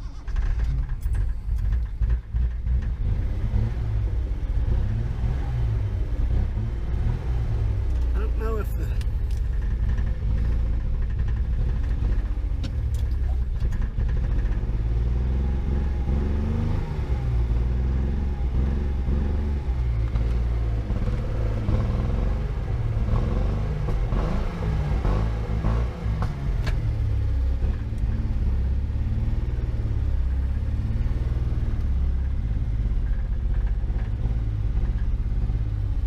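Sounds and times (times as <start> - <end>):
car engine rumbling while driving: 0.0 - 36.0.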